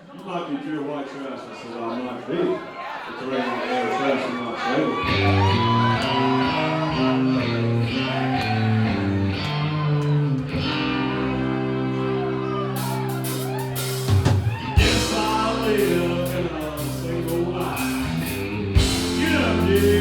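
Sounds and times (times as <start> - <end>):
electric guitar: 5.0 - 20.0
person singing: 5.1 - 14.1, 14.7 - 20.0
drums and cymbals: 12.8 - 20.0.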